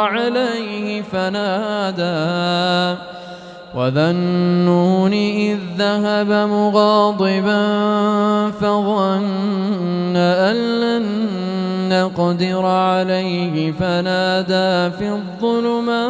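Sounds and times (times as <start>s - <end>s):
man chanting: 0.0s - 16.0s
short breaths: 3.0s - 3.8s.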